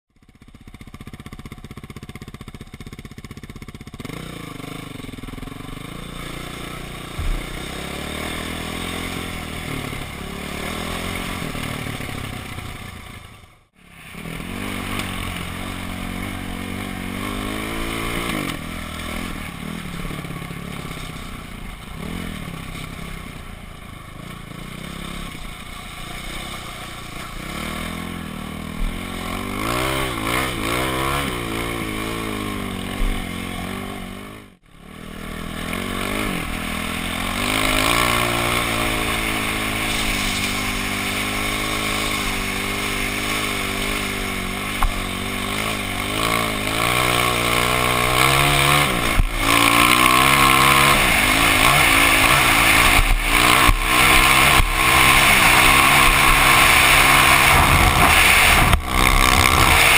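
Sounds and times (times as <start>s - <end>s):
dirt bike engine revving: 0.2s - 59.9s
short thump: 7.2s - 7.5s
rushing noise: 35.8s - 59.9s.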